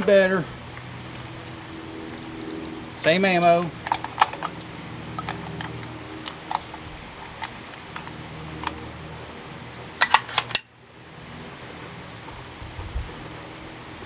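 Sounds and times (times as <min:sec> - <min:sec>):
low steady hum: 0:00.0 - 0:14.0
rifle bolt metallic clicks: 0:03.0 - 0:08.8.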